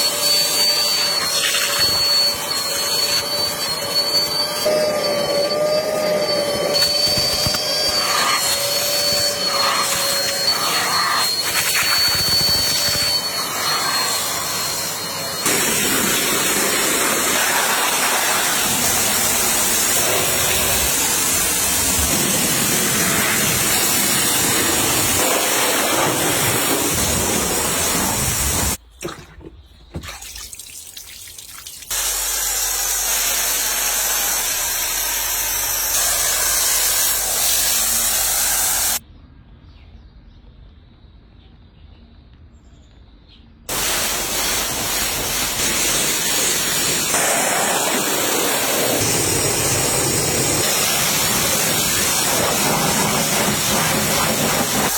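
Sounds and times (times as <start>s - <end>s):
machine whining: 0.0s - 30.1s
water spray rushing: 15.4s - 39.0s, 43.7s - 54.9s.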